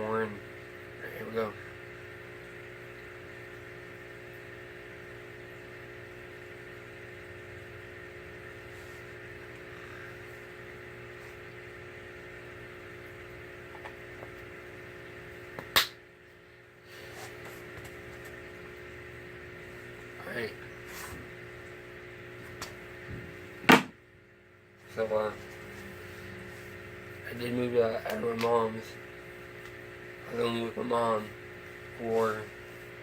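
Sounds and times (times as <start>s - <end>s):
fan or air conditioner hum: 0.0s - 33.0s.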